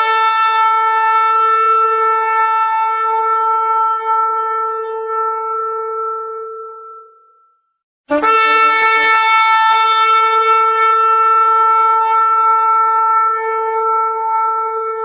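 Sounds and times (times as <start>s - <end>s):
shofar blasts: 0.0s - 7.3s, 8.1s - 15.0s.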